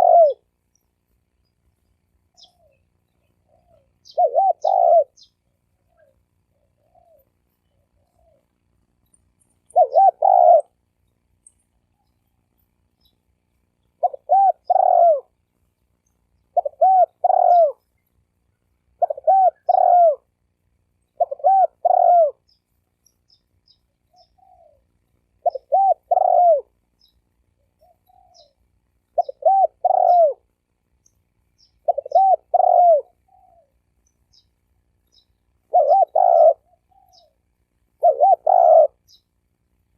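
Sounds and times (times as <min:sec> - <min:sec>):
dove cooing: 0:00.0 - 0:00.5, 0:02.4 - 0:08.6, 0:09.4 - 0:10.8, 0:14.0 - 0:15.4, 0:16.5 - 0:17.8, 0:19.0 - 0:20.3, 0:21.1 - 0:22.5, 0:24.0 - 0:26.8, 0:27.6 - 0:30.5, 0:31.6 - 0:33.9, 0:35.6 - 0:39.2
small birds chirping: 0:00.0 - 0:39.9.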